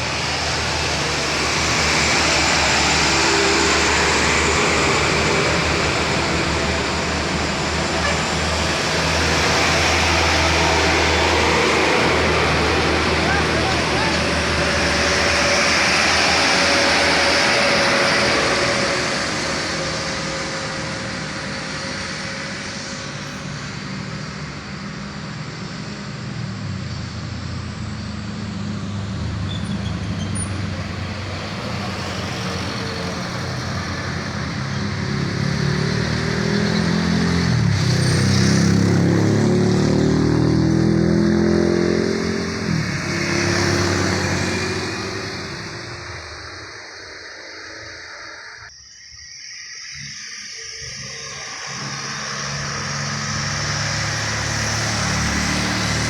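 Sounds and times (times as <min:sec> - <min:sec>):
heavy truck engine changing gear: 0:00.0 - 0:21.0, 0:26.8 - 0:48.7
heavy road traffic: 0:00.0 - 0:56.0.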